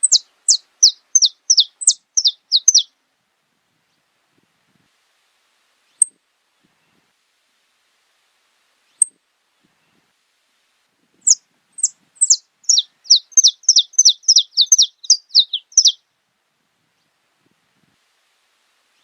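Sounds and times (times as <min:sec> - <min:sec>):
finch singing high notes: 0:11.8 - 0:16.0.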